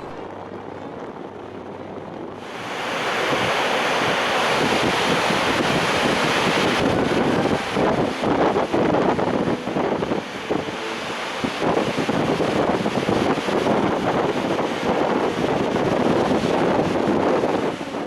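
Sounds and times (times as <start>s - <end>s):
waterfall roaring: 0.0s - 0.3s, 2.4s - 18.0s
wind buffeting microphone: 0.0s - 18.0s.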